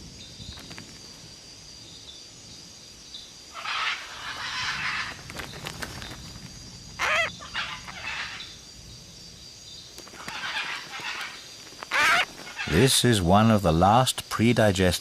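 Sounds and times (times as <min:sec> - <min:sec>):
macaws squawking: 0:03.6 - 0:05.3, 0:07.0 - 0:08.5, 0:10.1 - 0:12.8.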